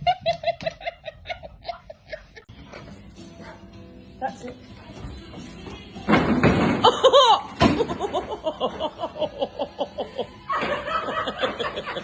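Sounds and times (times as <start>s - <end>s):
person laughing: 0.0s - 2.5s.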